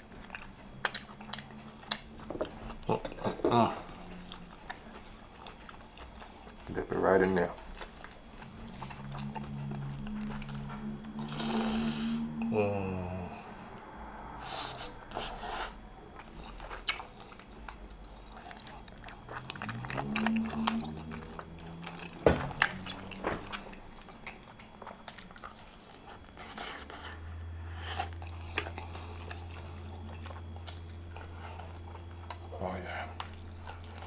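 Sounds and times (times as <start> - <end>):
chewing and biting: 0.0 - 11.6, 14.6 - 34.0
person humming: 2.9 - 4.2, 9.3 - 13.6, 20.0 - 21.8.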